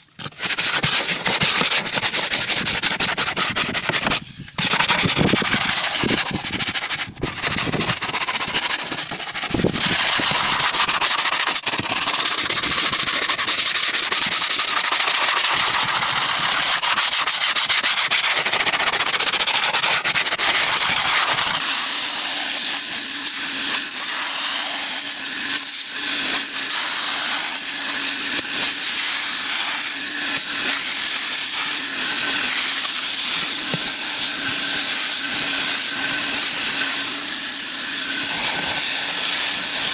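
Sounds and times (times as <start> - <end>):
scrubbing: 0.1 - 11.8.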